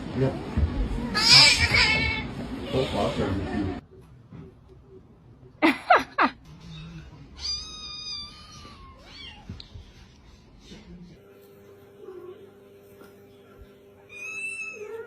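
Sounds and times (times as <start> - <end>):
cat meowing: 7.4 - 9.6.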